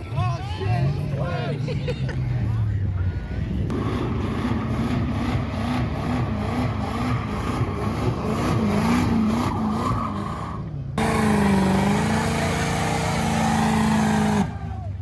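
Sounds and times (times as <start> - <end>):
car engine revving: 3.7 - 14.8
tyres screeching: 6.3 - 14.7.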